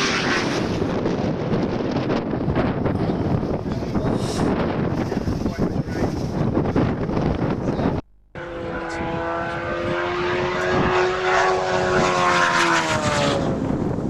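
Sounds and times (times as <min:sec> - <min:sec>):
high-revving engine passing: 0:00.0 - 0:01.3, 0:08.4 - 0:14.0
wind on microphone: 0:00.0 - 0:14.0.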